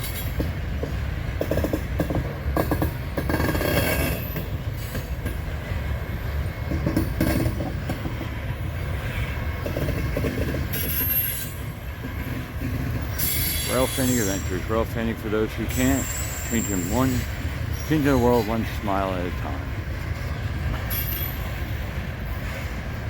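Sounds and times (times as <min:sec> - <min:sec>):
wheel clicks over rail joints: 0:00.0 - 0:05.5
freight cars rumbling: 0:00.0 - 0:23.0
wheel squeal: 0:10.7 - 0:11.9, 0:12.9 - 0:14.6, 0:15.7 - 0:18.4, 0:20.9 - 0:21.6.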